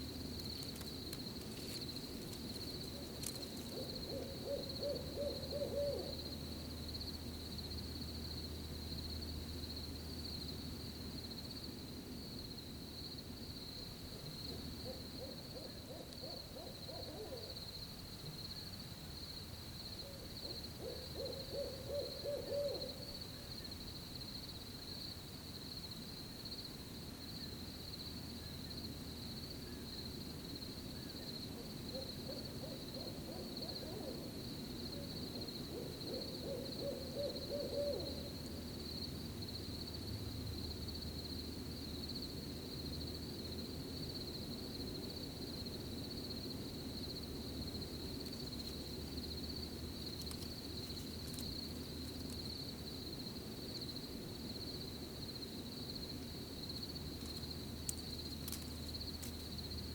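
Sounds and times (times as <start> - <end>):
cricket trill: 0.0 - 59.9
owl hooting: 2.9 - 6.3, 14.5 - 17.6, 20.0 - 23.5, 31.0 - 34.4, 35.0 - 38.4.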